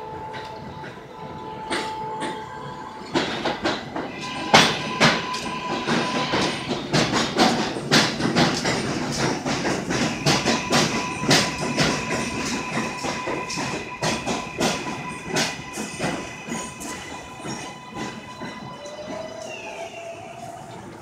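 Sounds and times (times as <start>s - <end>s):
train whine: 0.0s - 21.0s
train wheels clattering over rail joints: 3.0s - 19.5s.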